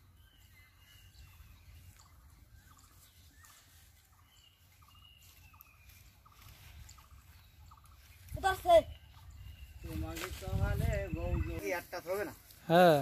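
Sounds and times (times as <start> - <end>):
bird chirps: 0.0 - 12.2.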